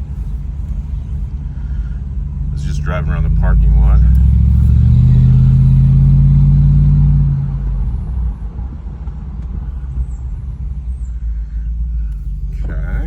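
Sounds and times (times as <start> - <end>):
car engine deep drone: 0.0 - 13.0.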